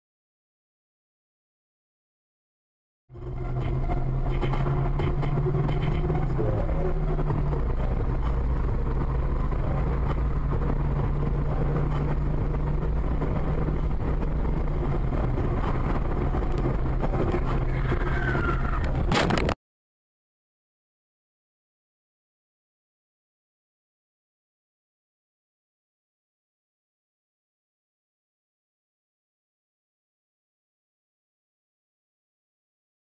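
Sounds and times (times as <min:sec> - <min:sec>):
car engine running: 0:03.1 - 0:19.6
road noise: 0:03.1 - 0:19.6.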